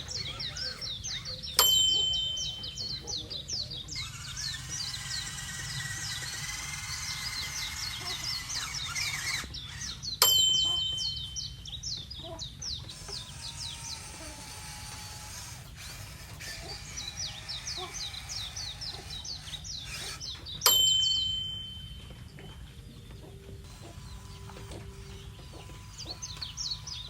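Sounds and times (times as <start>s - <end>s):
birds chirping rapidly: 0.0s - 27.0s
bright ringing hit: 1.6s - 3.2s, 10.2s - 11.5s.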